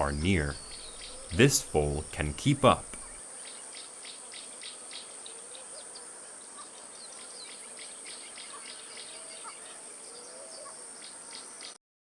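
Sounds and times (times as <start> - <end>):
insect chirps: 0.0 - 6.4.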